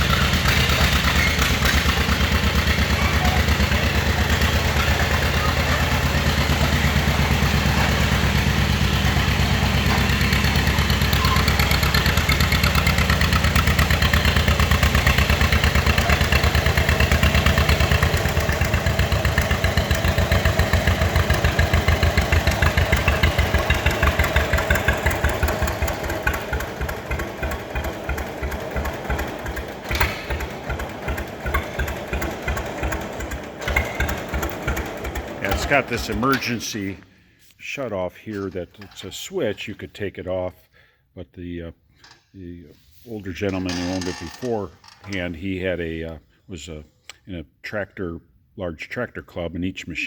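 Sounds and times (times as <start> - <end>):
two-cylinder engine pulsing: 0.0 - 36.7.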